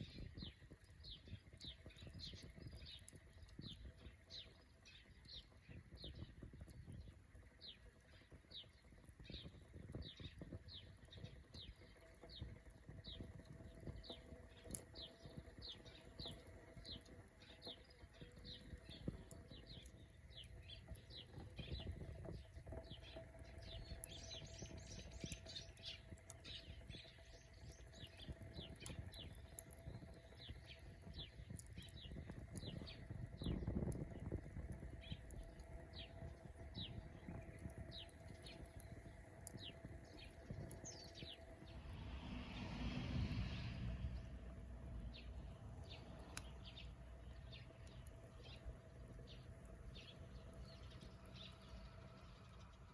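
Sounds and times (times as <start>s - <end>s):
bird chirping: 7.6s - 42.7s, 45.0s - 52.9s
faint low rumble: 13.0s - 52.9s.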